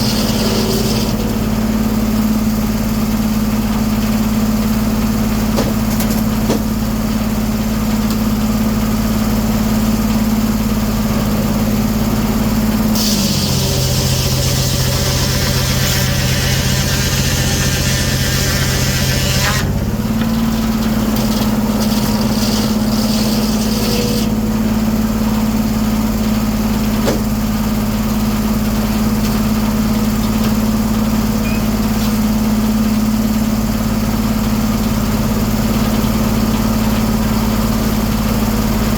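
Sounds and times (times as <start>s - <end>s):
sawmill drive hum: 0.0s - 38.9s
saw cutting log hiss: 12.9s - 19.7s.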